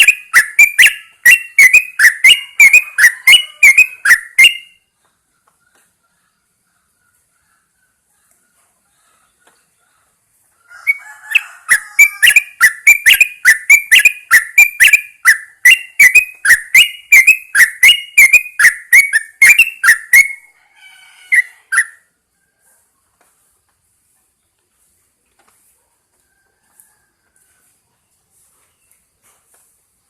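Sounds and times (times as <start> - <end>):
bird singing whistled notes: 0.0 - 4.8, 10.9 - 20.5, 21.2 - 22.1.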